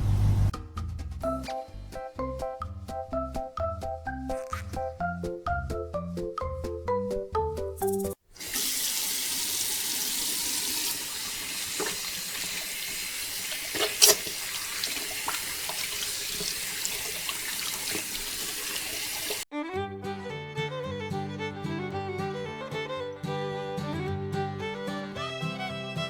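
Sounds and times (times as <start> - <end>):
water pouring and gushing: 8.1 - 19.5
knocks and splashes: 11.3 - 19.4.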